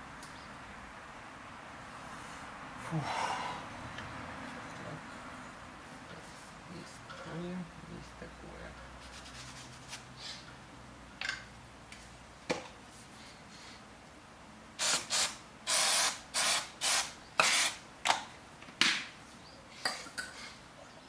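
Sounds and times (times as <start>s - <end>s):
aerosol spray hissing bursts: 14.8s - 17.8s.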